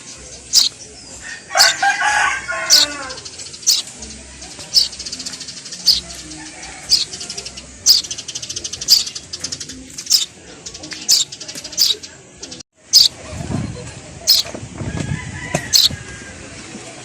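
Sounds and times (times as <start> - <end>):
baby bird cheeping: 0.0 - 0.8, 1.6 - 1.9, 2.6 - 3.9, 4.6 - 10.4, 11.0 - 12.0, 12.9 - 13.2, 14.2 - 14.5, 15.7 - 16.0.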